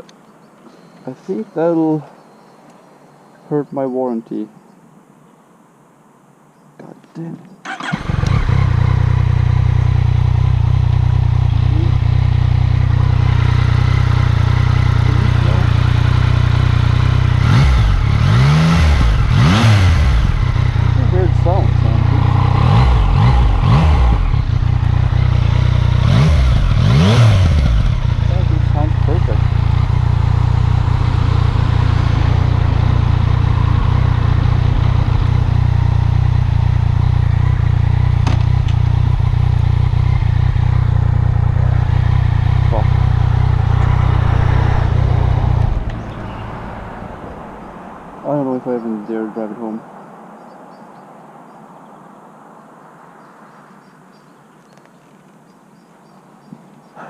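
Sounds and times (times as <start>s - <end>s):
motorcycle engine revving: 7.6s - 49.8s
motorcycle engine idling: 7.7s - 48.8s
wind rumble on microphone: 42.7s - 48.2s.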